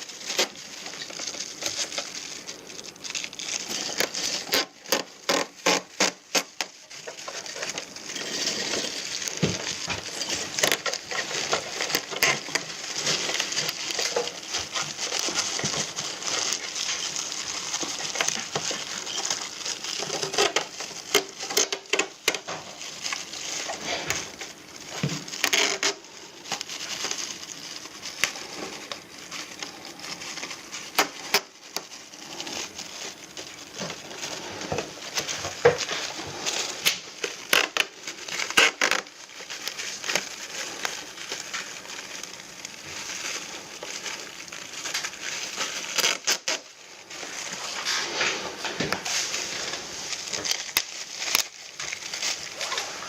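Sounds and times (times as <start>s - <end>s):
rustling crackling noise: 0.0s - 53.0s.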